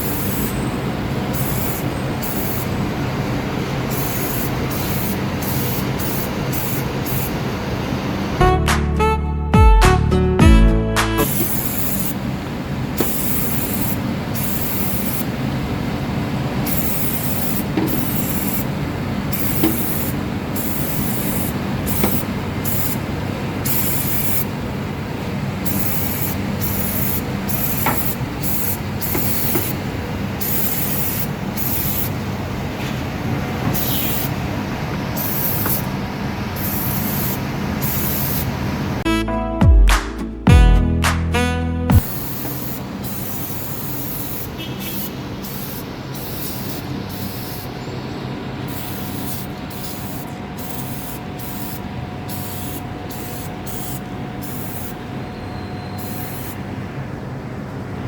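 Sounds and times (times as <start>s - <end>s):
aerosol can spraying: 0.0s - 0.6s, 1.3s - 2.9s, 3.8s - 7.4s, 11.2s - 12.2s, 13.0s - 15.4s, 16.6s - 24.5s, 25.6s - 29.8s, 30.4s - 32.2s, 33.7s - 34.4s, 35.1s - 35.9s, 36.6s - 38.5s, 41.9s - 47.8s, 48.7s - 55.0s, 56.0s - 56.6s.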